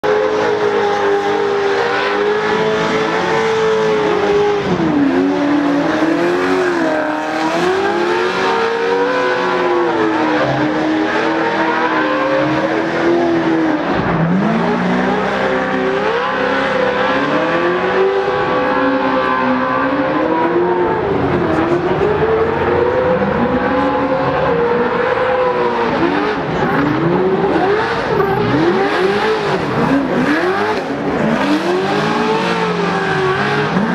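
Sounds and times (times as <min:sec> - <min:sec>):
racing engines revving: 0:00.0 - 0:33.9.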